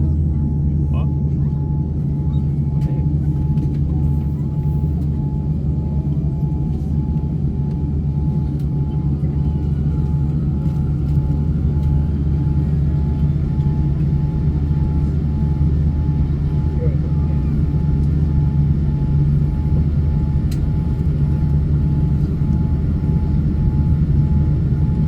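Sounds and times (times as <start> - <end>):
jet engine cabin rumble: 0.0 - 25.0.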